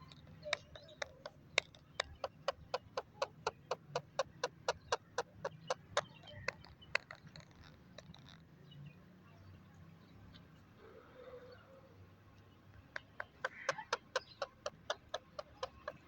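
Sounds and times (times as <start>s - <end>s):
parrot clicking: 0.0s - 8.4s, 12.8s - 16.0s.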